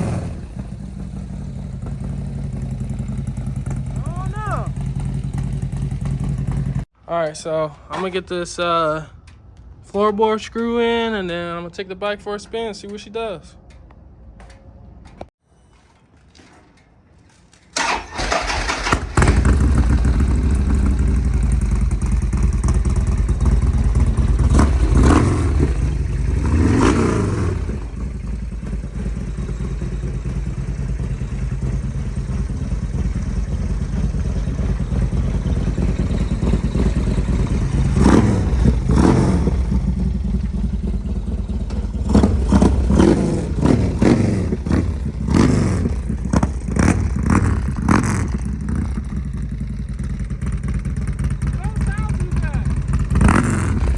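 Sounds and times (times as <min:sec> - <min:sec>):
motorcycle engine revving: 0:00.0 - 0:06.9, 0:17.8 - 0:53.9.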